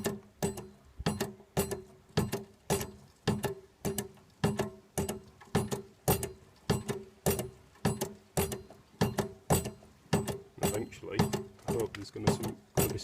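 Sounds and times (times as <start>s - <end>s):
hand pump knocking: 0.0s - 13.0s.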